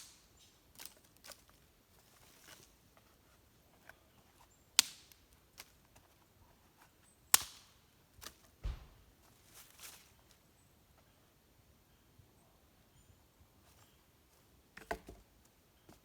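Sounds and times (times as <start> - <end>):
sharp knocks: 8.6 - 9.0
dull low thump: 8.6 - 9.1.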